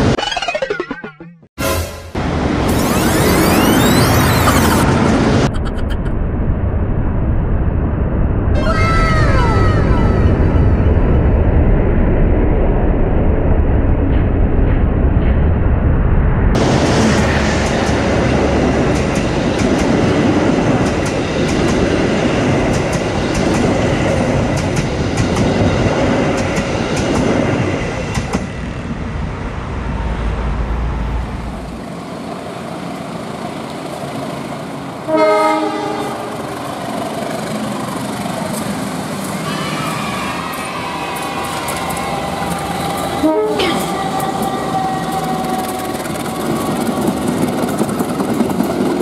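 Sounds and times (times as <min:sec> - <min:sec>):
train wheels rumbling on track: 0:10.0 - 0:49.0
diesel locomotive horn: 0:35.0 - 0:36.5, 0:39.3 - 0:47.6.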